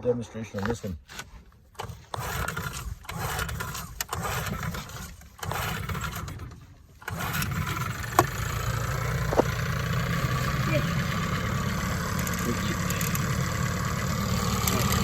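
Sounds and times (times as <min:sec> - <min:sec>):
outboard motor starting and running: 0:00.7 - 0:15.0
sharp clicks: 0:12.1 - 0:13.3.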